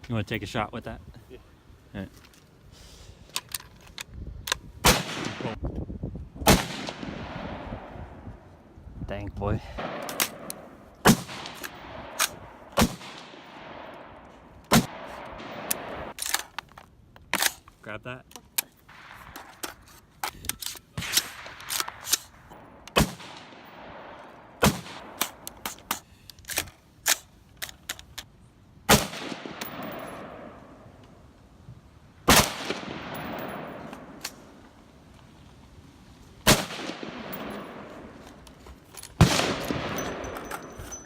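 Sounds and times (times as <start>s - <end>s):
rifle shots echoing: 4.8s - 5.6s, 6.4s - 7.9s, 9.8s - 16.2s, 21.0s - 25.5s, 28.9s - 30.9s, 32.2s - 34.6s, 36.4s - 38.2s, 39.2s - 41.0s.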